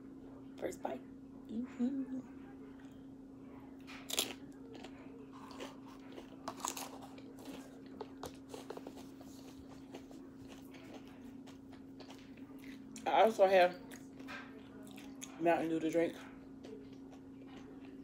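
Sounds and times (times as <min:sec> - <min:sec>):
low steady hum: 0:00.0 - 0:18.0
chewing crunchy chips: 0:03.8 - 0:18.0.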